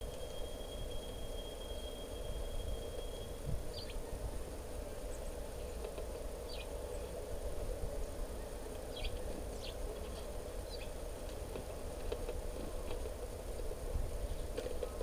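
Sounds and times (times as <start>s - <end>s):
bird chirps: 0.1s - 4.2s, 8.4s - 11.0s.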